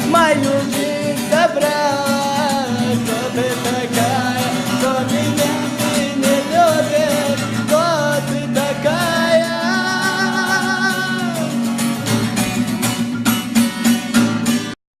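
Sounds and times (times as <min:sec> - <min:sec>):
guitar strumming chords: 0:00.0 - 0:14.8
person singing a long note: 0:09.5 - 0:11.4.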